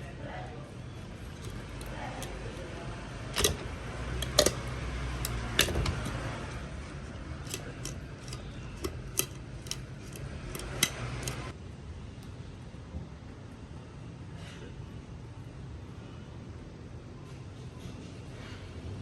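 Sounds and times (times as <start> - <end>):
kitchen tools clinking: 3.2 - 6.4, 7.4 - 11.5.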